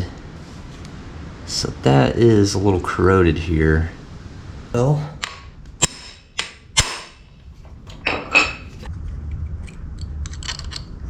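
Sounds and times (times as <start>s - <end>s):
hand tools knocking on metal: 5.2s - 8.8s.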